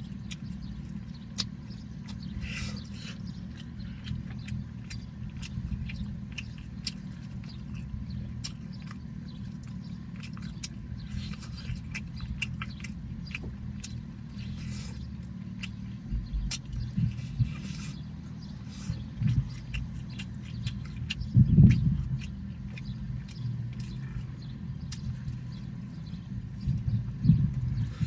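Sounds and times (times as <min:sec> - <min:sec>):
person chewing food: 0:00.0 - 0:28.0
steady low hum: 0:00.0 - 0:28.0.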